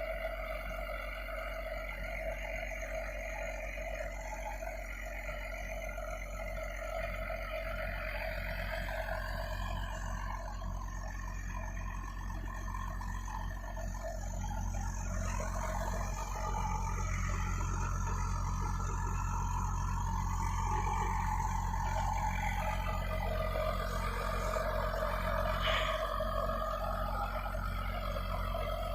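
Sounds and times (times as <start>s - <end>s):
truck diesel engine under load: 0.0s - 28.9s.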